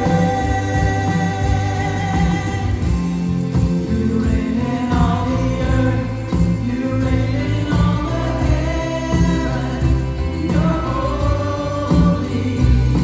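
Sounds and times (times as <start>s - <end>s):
choir singing gospel song: 0.0s - 13.0s
instrumental backing with bass: 0.0s - 13.0s.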